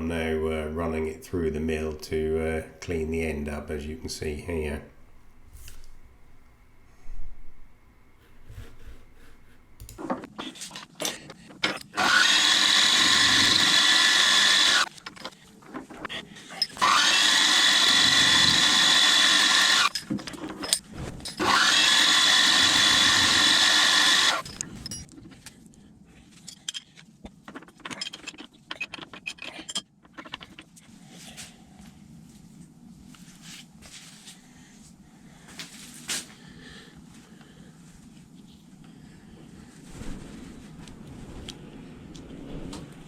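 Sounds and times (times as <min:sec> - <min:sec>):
power tool motor whining: 0:11.9 - 0:14.9, 0:16.7 - 0:20.0, 0:21.4 - 0:24.6
metal parts clicking and knocking: 0:26.4 - 0:30.8.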